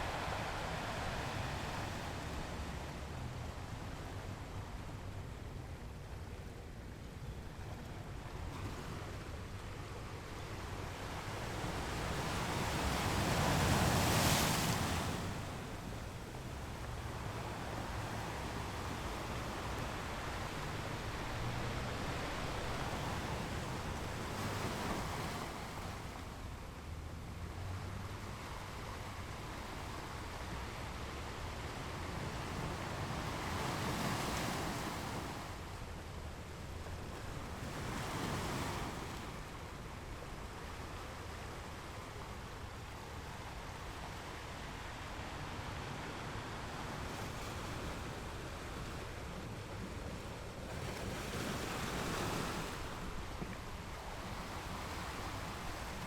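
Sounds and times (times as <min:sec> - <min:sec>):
ocean waves breaking on rocks: 0:11.6 - 0:16.3, 0:32.1 - 0:35.6, 0:43.2 - 0:56.0.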